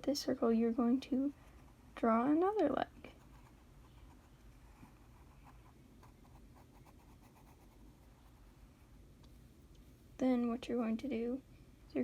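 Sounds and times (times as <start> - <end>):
pencil scratching on paper: 3.1 - 8.4.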